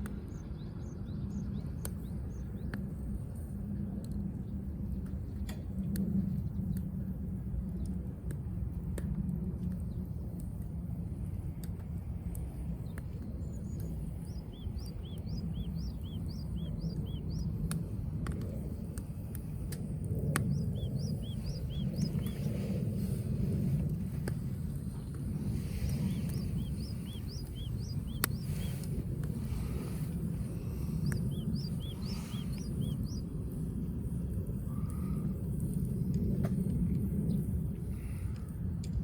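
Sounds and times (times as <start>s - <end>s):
wood fire crackling: 7.6s - 38.3s
bird chirping: 12.8s - 17.5s, 20.4s - 23.1s, 25.6s - 28.9s, 30.7s - 33.3s.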